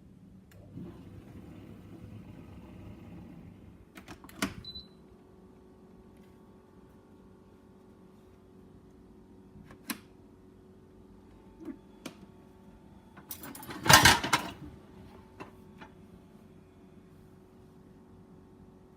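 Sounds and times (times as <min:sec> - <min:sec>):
faint steady hum: 0:00.0 - 0:18.9
dishwasher clicks and knocks: 0:13.5 - 0:14.6.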